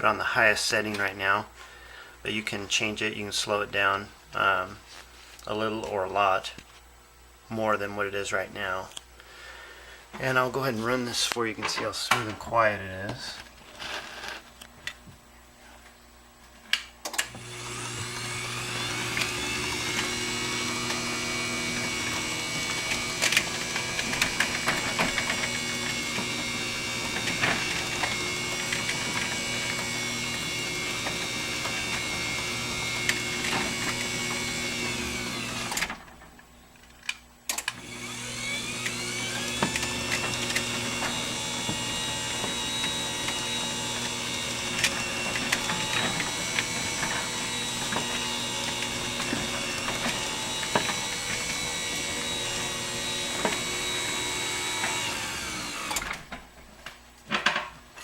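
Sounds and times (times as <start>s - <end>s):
garage door opener motor whine: 17.1s - 36.2s, 37.5s - 56.5s.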